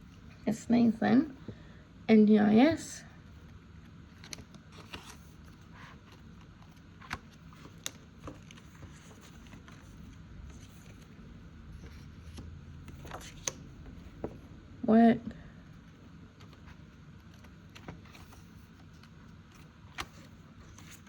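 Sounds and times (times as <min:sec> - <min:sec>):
paper envelopes rustling: 0:04.1 - 0:14.4, 0:16.3 - 0:21.0.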